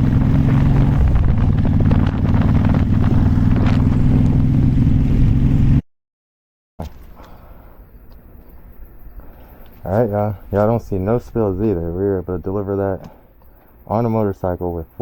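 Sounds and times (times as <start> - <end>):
motorcycle engine running: 0.0 - 5.8
wind noise on microphone: 0.0 - 5.8.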